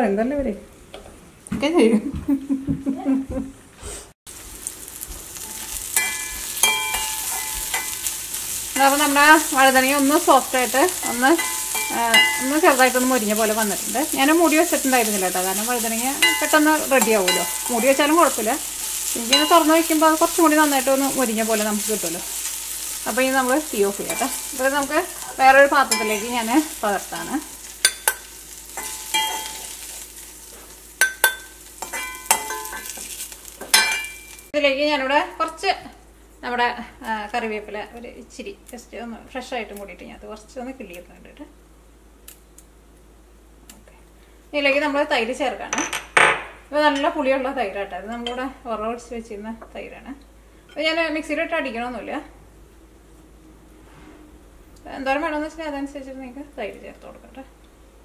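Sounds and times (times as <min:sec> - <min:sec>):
vegetables sizzling in pan: 0:04.3 - 0:35.6.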